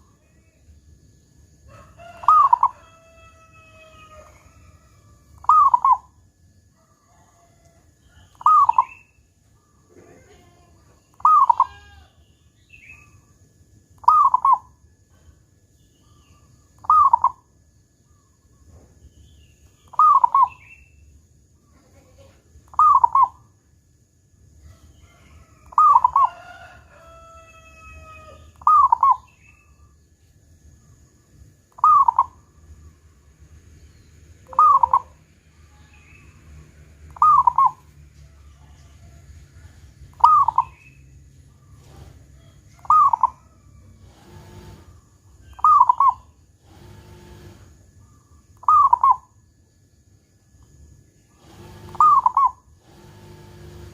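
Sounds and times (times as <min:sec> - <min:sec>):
dove cooing: 0:02.1 - 0:02.8, 0:05.4 - 0:06.1, 0:08.3 - 0:09.0, 0:11.2 - 0:12.0, 0:14.0 - 0:14.6, 0:19.9 - 0:20.6, 0:22.7 - 0:23.4, 0:25.6 - 0:26.5, 0:28.0 - 0:29.4, 0:31.8 - 0:32.4, 0:34.4 - 0:35.2, 0:37.1 - 0:37.9, 0:40.2 - 0:40.9, 0:41.6 - 0:47.7, 0:48.6 - 0:49.2, 0:51.4 - 0:53.9.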